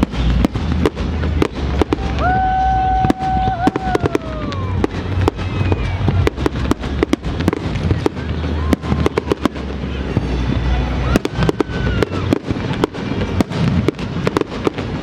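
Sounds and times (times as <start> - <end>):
deep rumble: 0.0 - 15.0
fireworks crackling bangs: 0.0 - 15.0
firework whistle sliding down: 10.2 - 12.8.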